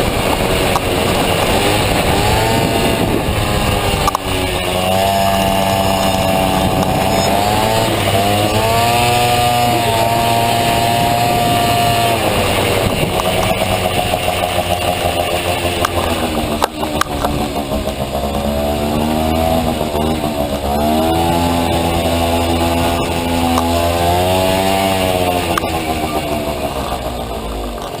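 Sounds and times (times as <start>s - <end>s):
scooter engine revving: 0.0s - 28.0s.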